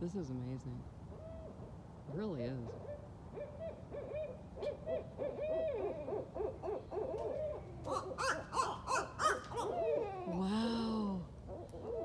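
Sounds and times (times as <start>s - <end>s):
owls hooting: 2.9s - 10.5s.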